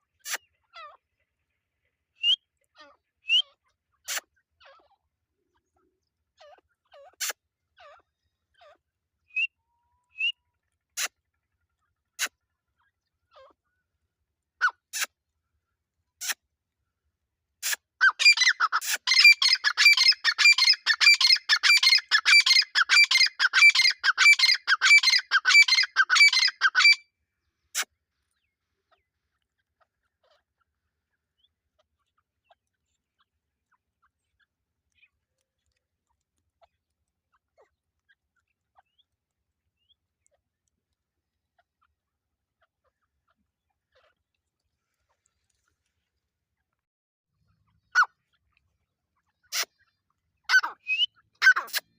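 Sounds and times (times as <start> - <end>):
francolin calling: 18.1 - 27.0
partridges chirping and clicking: 18.2 - 27.0.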